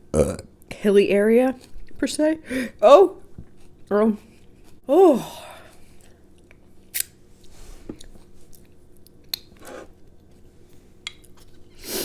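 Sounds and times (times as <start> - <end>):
person chewing: 3.4 - 4.8, 5.7 - 10.4.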